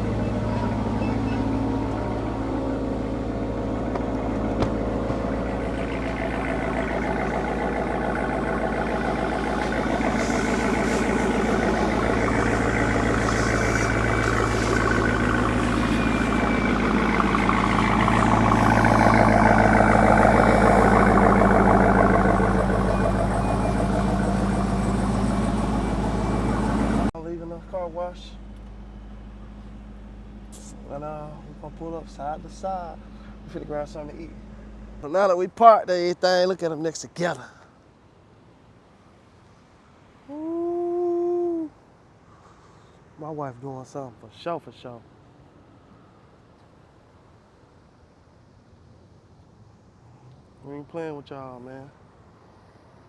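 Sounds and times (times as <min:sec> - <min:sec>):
car engine running: 0:00.0 - 0:35.8.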